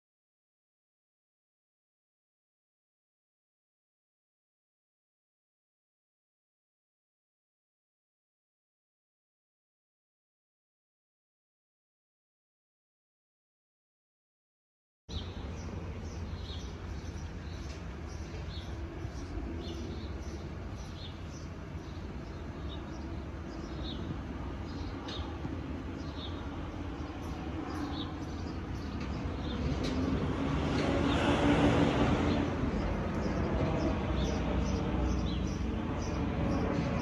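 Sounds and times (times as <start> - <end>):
birds chirping: 15.1 - 37.0
jet airliner engine noise: 15.2 - 37.0.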